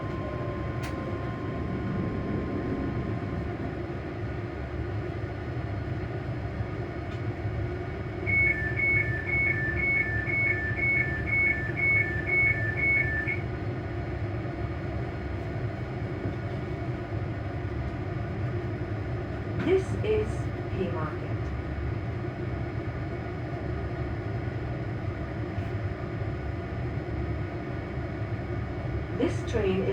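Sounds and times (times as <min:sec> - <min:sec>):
electric train rumble and hum: 0:00.0 - 0:29.9
two-tone electronic beep: 0:08.3 - 0:13.4.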